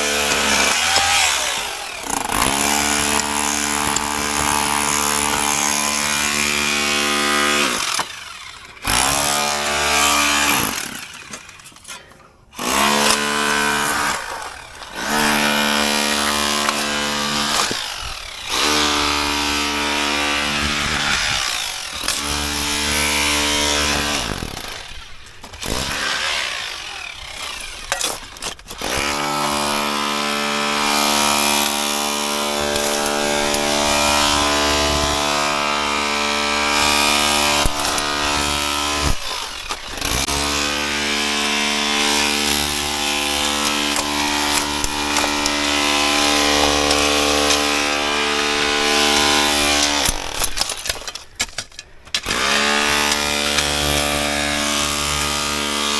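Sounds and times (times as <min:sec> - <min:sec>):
power saw cutting: 0:00.0 - 0:55.9.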